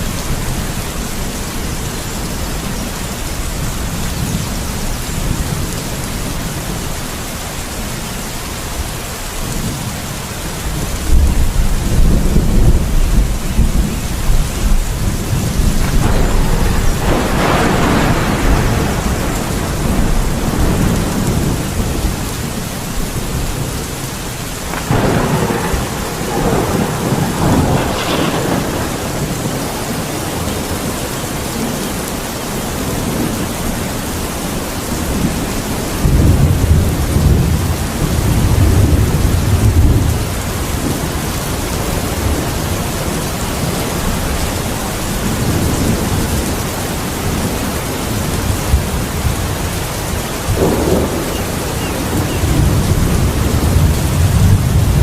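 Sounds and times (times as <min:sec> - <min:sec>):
steady rain: 0:00.0 - 0:55.0
rolling thunder rumble: 0:09.4 - 0:55.0
thunder clap: 0:10.7 - 0:32.0, 0:35.0 - 0:55.0.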